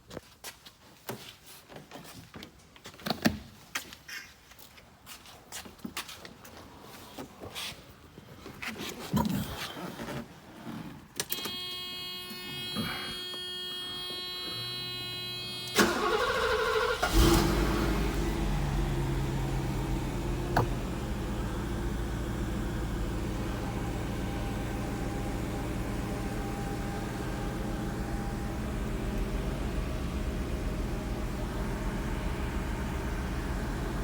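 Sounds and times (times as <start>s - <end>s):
car engine idling: 15.2s - 34.0s
starter motor cranking: 15.8s - 17.6s.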